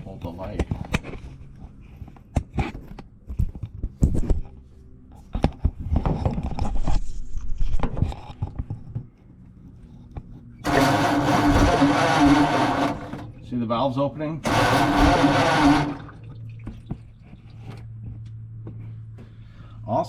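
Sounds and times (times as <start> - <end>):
starter motor whirring: 10.6 - 13.5, 14.4 - 16.3.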